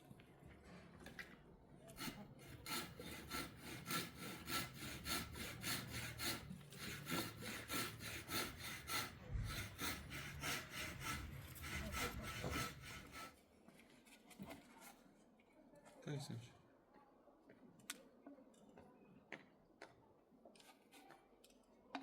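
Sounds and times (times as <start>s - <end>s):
rhythmic rasping strokes: 2.0s - 13.3s.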